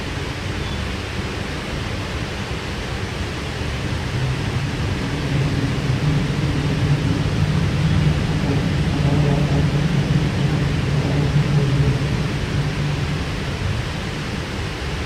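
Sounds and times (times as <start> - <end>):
train wheels rumbling on track: 0.0 - 15.0
low hum: 3.0 - 15.0.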